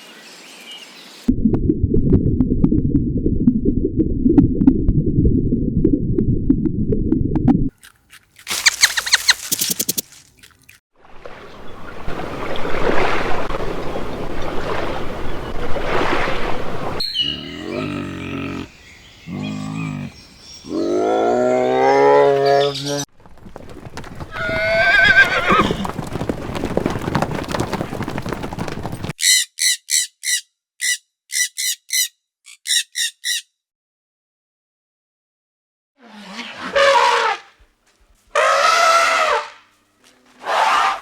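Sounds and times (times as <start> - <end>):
horses whinnying and neighing: 24.2 - 29.0.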